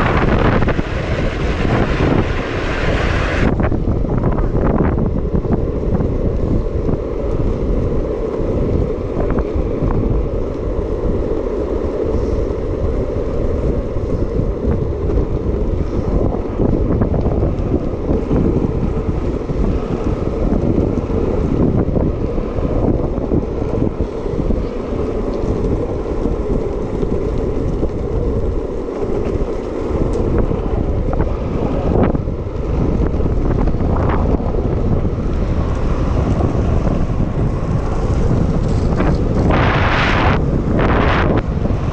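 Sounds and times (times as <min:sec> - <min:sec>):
wheels rolling on asphalt: 0:00.0 - 0:41.9
wind on microphone: 0:00.0 - 0:41.9.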